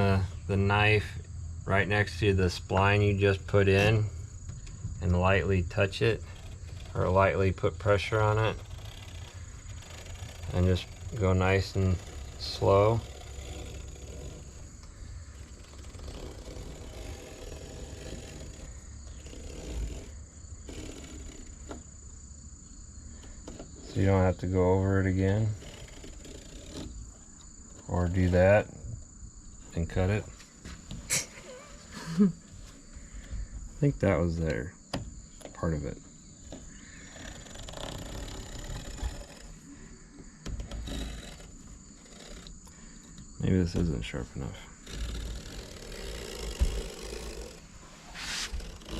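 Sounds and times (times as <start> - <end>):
crickets chirring: 0.0 - 48.9
knife scraping screen mesh: 44.8 - 48.9.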